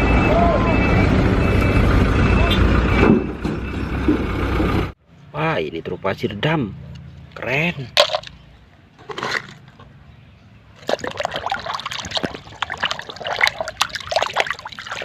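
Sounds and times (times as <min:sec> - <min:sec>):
water splashing and sloshing: 0:10.8 - 0:15.0.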